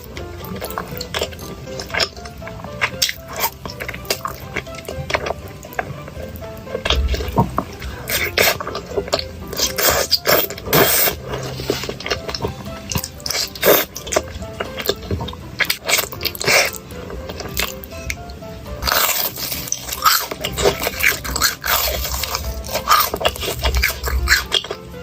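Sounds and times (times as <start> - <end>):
light background music: 0.0 - 25.0
crunchy eating bites: 6.7 - 17.8, 18.8 - 24.8.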